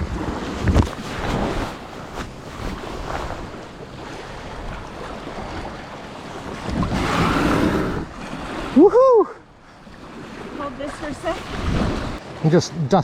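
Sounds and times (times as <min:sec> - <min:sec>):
sea water washing and splashing: 0:00.0 - 0:13.0.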